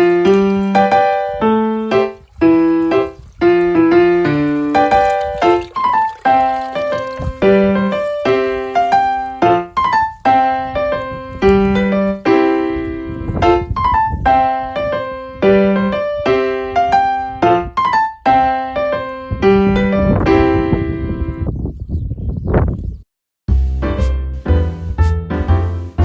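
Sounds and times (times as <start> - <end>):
piano melody: 0.0 - 21.5, 23.5 - 26.0.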